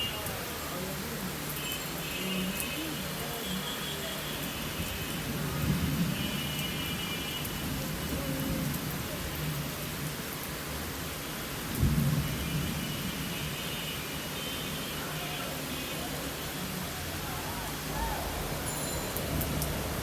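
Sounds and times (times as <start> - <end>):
steady rain: 0.0 - 20.0
low thunder rumbles: 11.8 - 12.8, 17.0 - 20.0.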